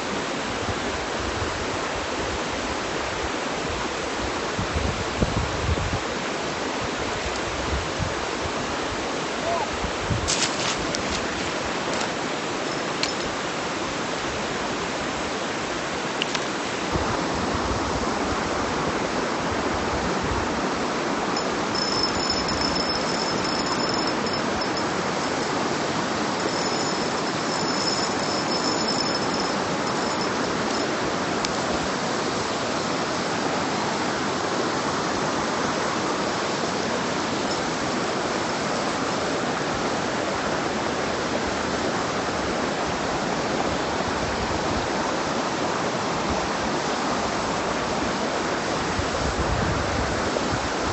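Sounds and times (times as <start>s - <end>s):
mountain stream rushing: 0.0s - 50.9s
faint high-pitched call: 9.4s - 9.8s.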